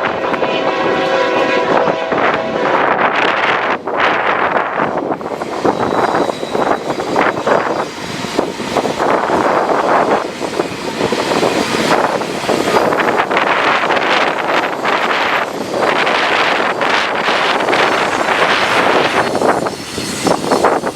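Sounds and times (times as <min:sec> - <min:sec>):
strong wind buffeting microphone: 0:00.0 - 0:20.9.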